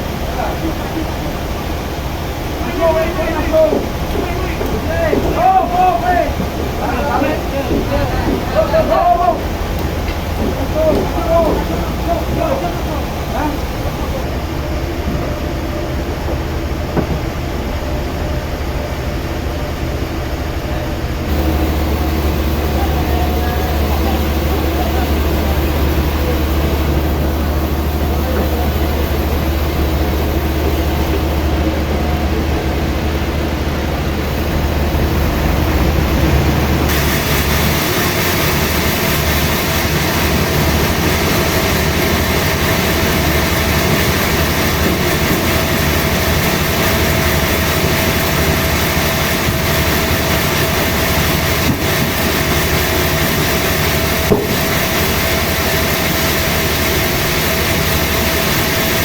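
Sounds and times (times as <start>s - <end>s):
machine whine: 0.0s - 59.0s
sawmill machinery running: 0.0s - 59.0s
deep hum: 20.8s - 59.0s.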